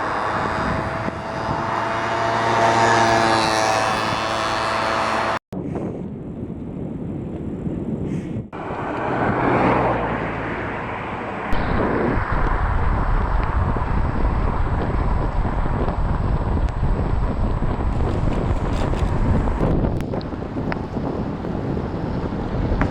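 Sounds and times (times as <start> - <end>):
wind rushing over microphone: 0.0 - 22.9
low rumble: 9.4 - 22.9.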